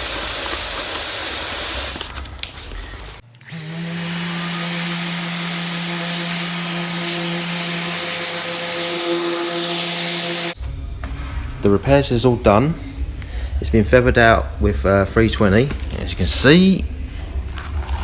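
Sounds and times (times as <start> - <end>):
orbital sander sanding plastic: 0.0 - 10.6
motor hum: 3.2 - 10.6.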